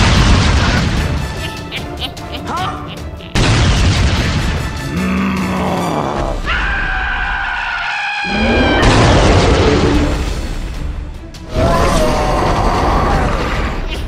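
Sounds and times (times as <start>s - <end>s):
rumbling crash: 0.0s - 1.2s, 3.4s - 4.8s, 8.5s - 11.0s.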